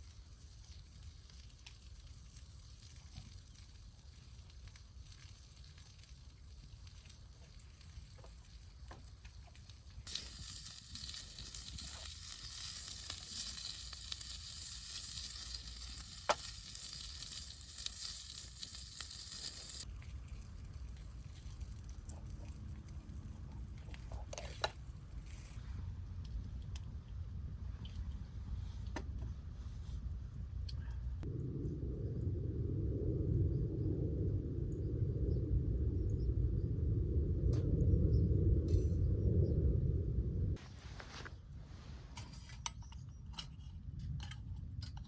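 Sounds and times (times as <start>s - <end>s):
food sizzling in frying pan: 10.1s - 19.9s
low rumble: 25.6s - 42.1s.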